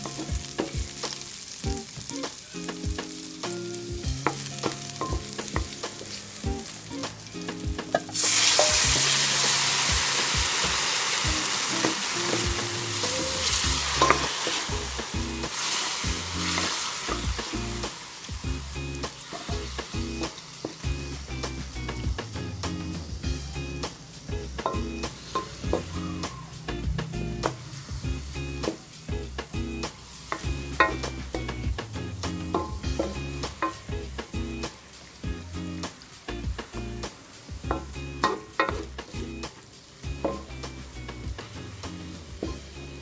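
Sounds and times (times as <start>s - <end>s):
loud sizzle: 0.0s - 43.0s
utensil tapping and scraping pan: 4.0s - 18.0s, 19.1s - 22.8s, 24.6s - 26.0s, 30.2s - 34.8s, 37.7s - 42.6s.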